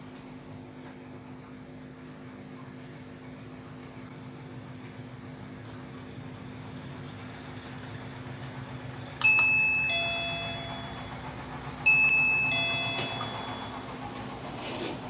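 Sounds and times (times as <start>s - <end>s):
doorbell ding-dong chime: 9.2s - 14.0s.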